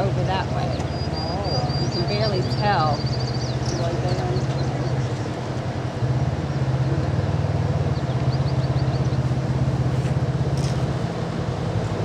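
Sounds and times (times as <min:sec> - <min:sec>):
engine idling: 0:00.0 - 0:12.0
bird chirping: 0:00.6 - 0:05.3, 0:07.9 - 0:09.3.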